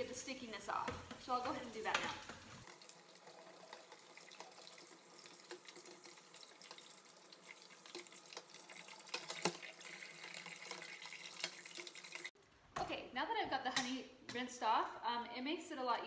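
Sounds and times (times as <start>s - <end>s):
faucet water splashing through mesh: 2.6s - 12.4s.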